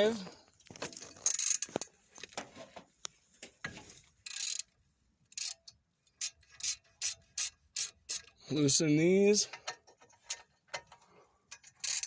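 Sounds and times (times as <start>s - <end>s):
ratchet clicking: 1.1s - 1.8s, 4.2s - 8.4s, 9.5s - 12.0s.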